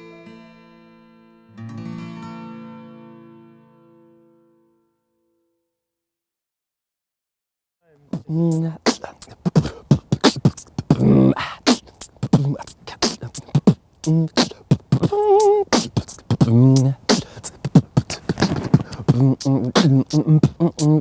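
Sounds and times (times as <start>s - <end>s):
person beatboxing: 7.9s - 21.0s.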